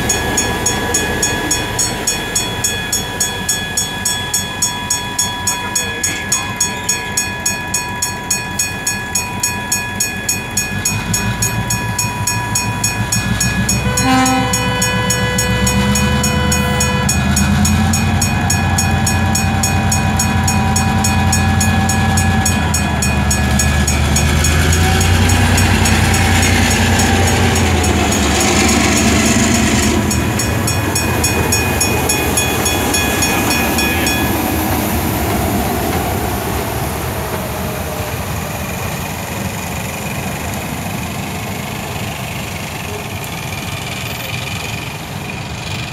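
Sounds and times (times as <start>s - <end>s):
low locomotive rumble: 0.0s - 45.9s
train wheels clicking over rail joints: 0.0s - 45.9s
train horn blast: 13.6s - 32.5s.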